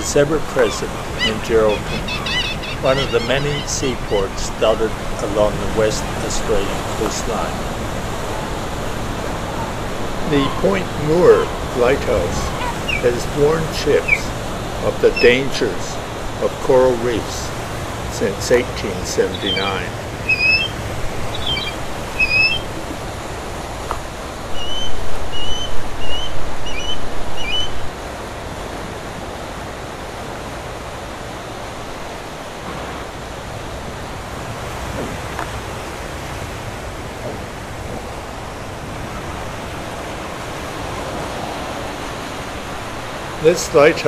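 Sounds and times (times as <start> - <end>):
seagulls calling: 0.0 - 23.6, 24.4 - 27.9
surf breaking: 0.0 - 24.5.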